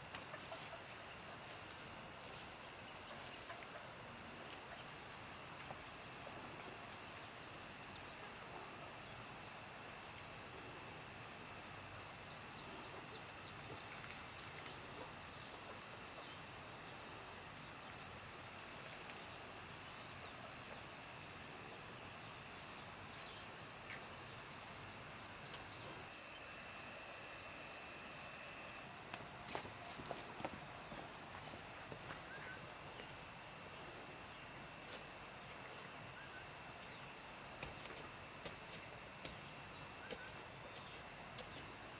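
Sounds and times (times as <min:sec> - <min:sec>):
high-pitched insect drone: 0:16.1 - 0:41.9
insect ticking: 0:22.4 - 0:24.4, 0:25.4 - 0:41.9.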